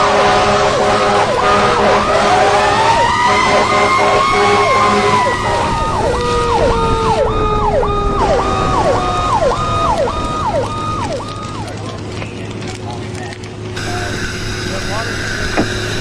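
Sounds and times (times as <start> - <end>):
fast cycling siren: 0.0 - 11.8
slow wailing siren: 0.0 - 12.2, 13.8 - 16.0.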